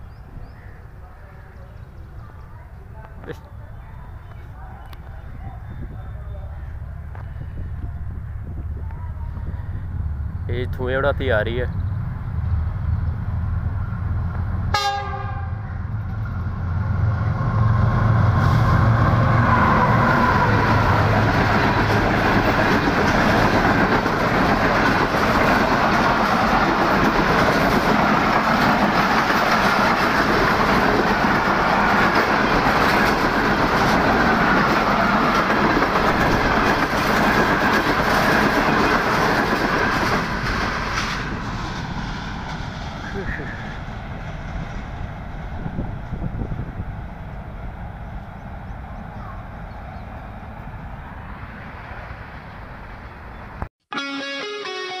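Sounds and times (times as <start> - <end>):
locomotive engine rumble: 0.0 - 53.7
train horn: 14.7 - 15.8, 53.9 - 55.0.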